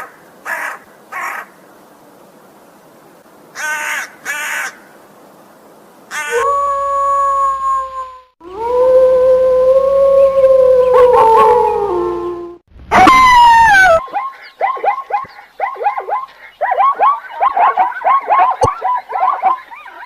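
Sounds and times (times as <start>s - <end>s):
dog howling: 6.3s - 15.0s
dog yelping: 13.0s - 20.0s
dog yipping: 13.0s - 20.0s.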